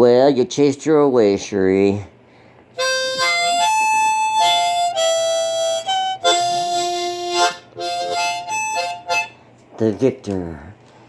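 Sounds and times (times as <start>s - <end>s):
blues harmonica: 2.8s - 9.5s.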